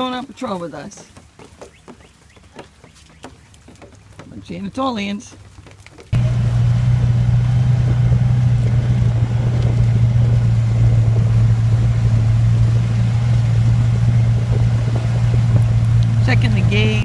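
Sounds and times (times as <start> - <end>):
vehicle engine humming: 6.1 - 17.0.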